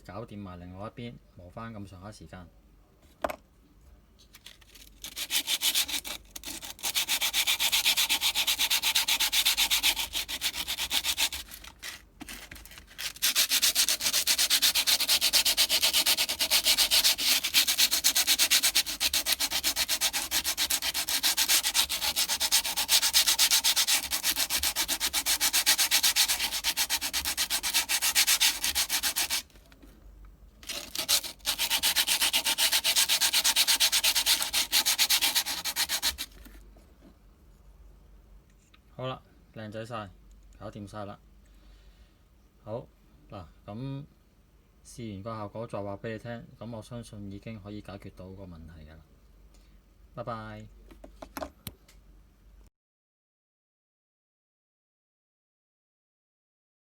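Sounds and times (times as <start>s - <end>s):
brake pad scratching on sandpaper: 5.0s - 29.6s, 30.6s - 36.6s.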